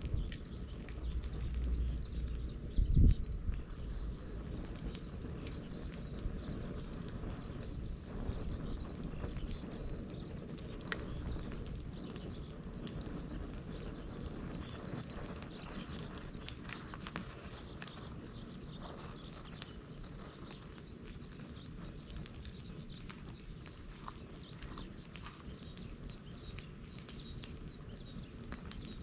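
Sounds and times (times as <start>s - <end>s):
sharp pops and clicks: 0.0s - 7.7s, 19.2s - 29.0s
bonfire crackling: 0.0s - 29.0s
low rush of flame: 0.0s - 29.0s.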